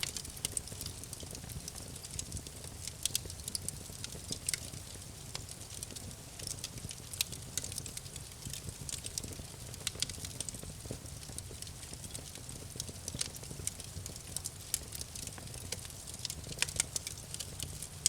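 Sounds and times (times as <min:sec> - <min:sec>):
campfire crackling and popping: 0:00.0 - 0:18.0
low rumble of fire: 0:00.0 - 0:18.0.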